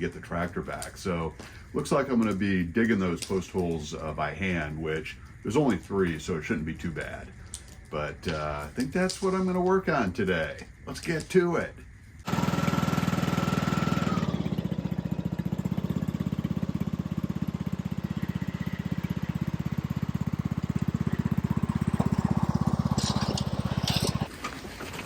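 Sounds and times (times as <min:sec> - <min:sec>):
engine running: 0:12.2 - 0:24.3.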